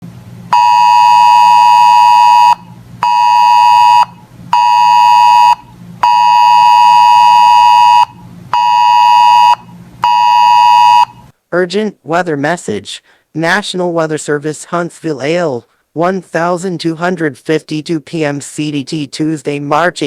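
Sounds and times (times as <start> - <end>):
alarm buzzer beeping: 0.5 - 11.3.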